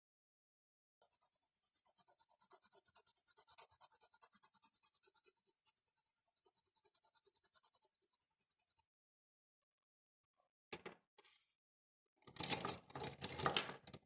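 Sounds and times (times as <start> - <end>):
drawing tool scratching on paper: 1.0 - 8.9.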